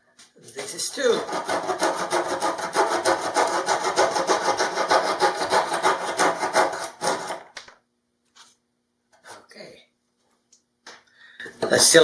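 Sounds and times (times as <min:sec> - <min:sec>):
saw cutting wooden dowel: 0:00.6 - 0:07.6.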